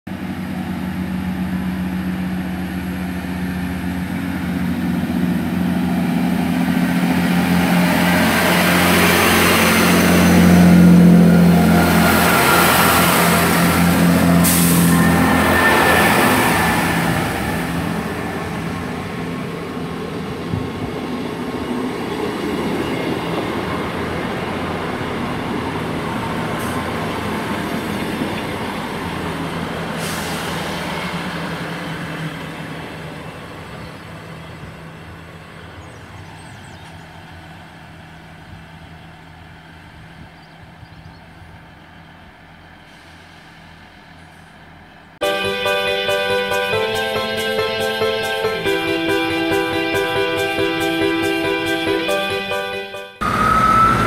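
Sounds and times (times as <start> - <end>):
diesel train engines humming: 0.1 - 54.0
rail noise: 0.1 - 54.0.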